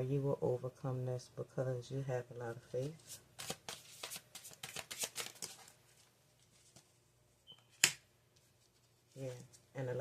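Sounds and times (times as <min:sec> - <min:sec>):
cards being shuffled: 0:02.8 - 0:06.9.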